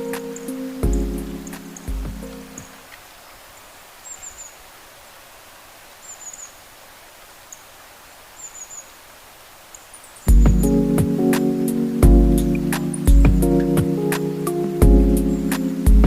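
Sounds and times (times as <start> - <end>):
steady outdoor hiss: 0.0 - 16.0
loud music: 10.3 - 13.9.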